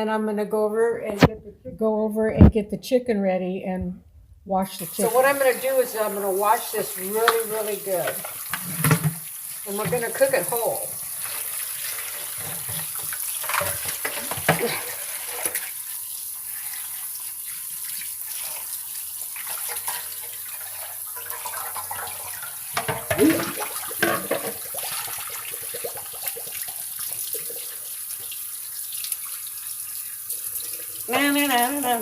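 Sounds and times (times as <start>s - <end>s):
water splashing: 4.7s - 9.0s, 18.0s - 28.4s
faucet water running: 4.7s - 32.0s.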